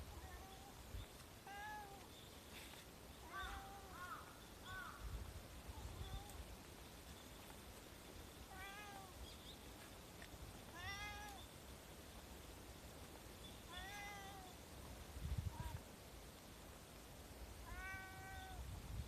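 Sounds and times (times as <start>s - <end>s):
cat meowing: 1.4s - 2.0s, 8.5s - 9.1s, 10.7s - 11.4s, 13.7s - 14.6s, 17.6s - 18.6s.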